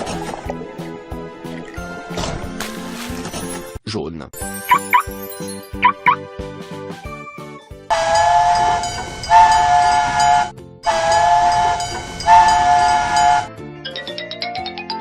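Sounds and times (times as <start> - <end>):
children's music: 4.4 - 9.8, 11.0 - 15.0
steam train whistle: 7.9 - 13.5.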